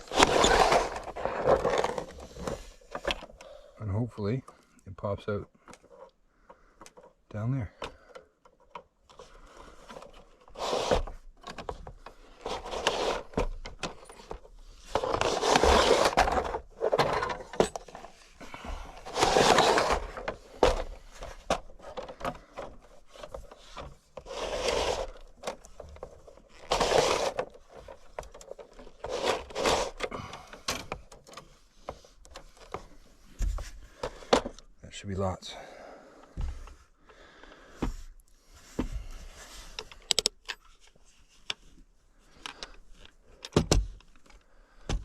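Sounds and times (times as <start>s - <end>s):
fish tape scraping in wall: 0.0s - 2.4s, 10.5s - 11.2s, 12.3s - 13.3s, 15.0s - 16.5s, 19.0s - 20.6s, 24.2s - 25.4s, 26.5s - 27.6s, 28.4s - 30.3s.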